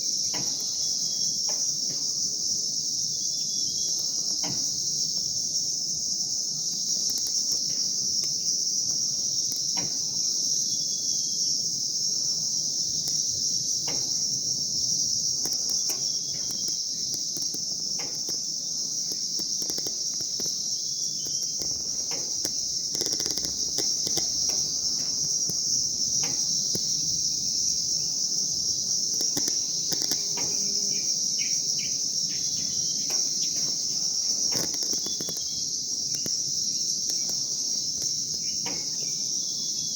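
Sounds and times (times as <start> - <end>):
high-pitched insect chorus: 0.0 - 39.9
bird chirps: 15.4 - 17.3, 18.3 - 28.2, 34.5 - 36.3.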